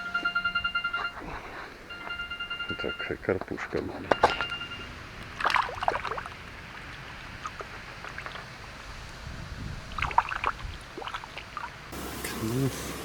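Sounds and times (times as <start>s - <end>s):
light water splashes: 4.2s - 12.6s.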